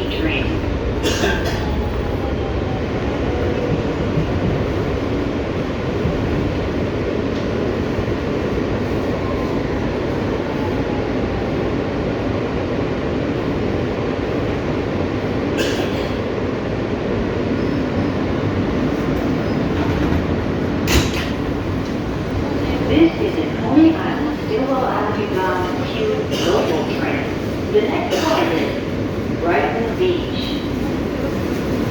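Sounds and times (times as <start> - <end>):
subway car wheels rumbling: 0.0 - 31.9.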